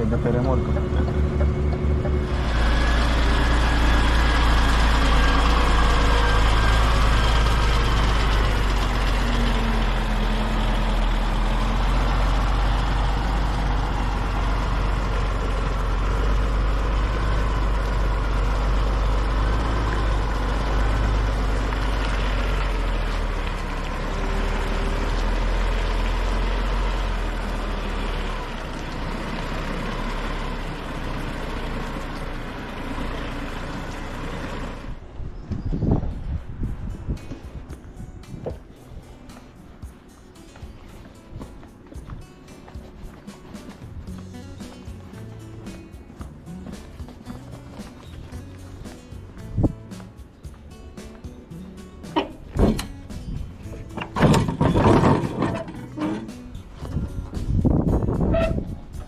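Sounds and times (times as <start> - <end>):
faint whining tones: 0.0 - 12.1
truck diesel engine running: 0.0 - 35.2, 36.1 - 59.0.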